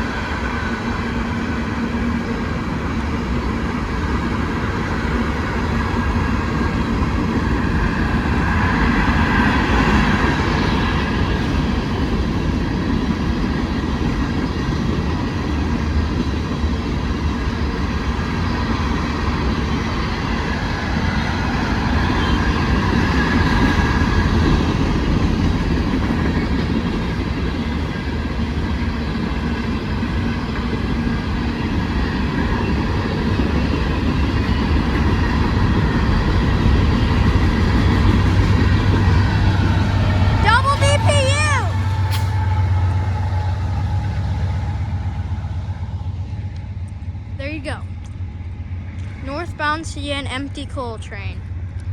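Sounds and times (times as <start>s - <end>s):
train cars rolling on rails: 0.0s - 51.9s.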